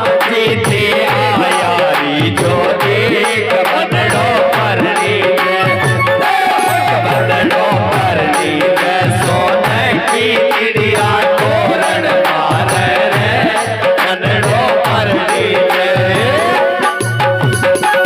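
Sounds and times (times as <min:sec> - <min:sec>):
hand drum beat: 0:00.0 - 0:18.0
keyboard organ melody: 0:02.3 - 0:08.1, 0:14.5 - 0:18.0.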